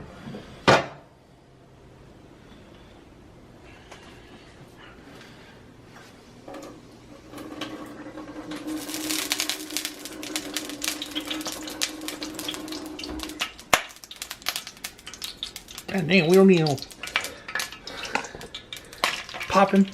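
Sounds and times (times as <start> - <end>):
oil crackling and popping: 7.3 - 19.9.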